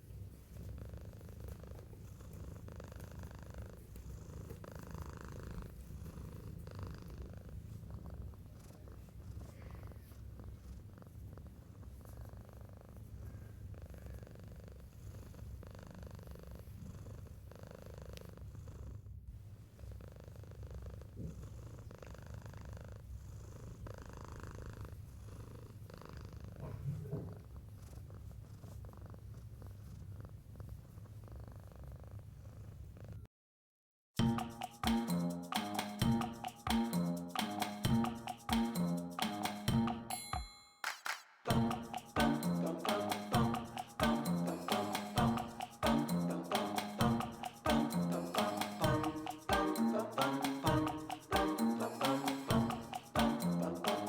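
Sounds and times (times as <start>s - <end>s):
cat purring: 0.0s - 33.3s.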